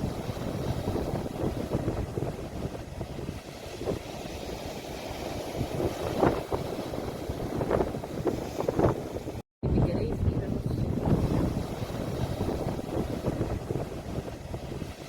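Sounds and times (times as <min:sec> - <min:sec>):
sea waves breaking on shore: 0:00.0 - 0:09.4, 0:10.0 - 0:15.0
wind rumbling on microphone: 0:00.0 - 0:15.0.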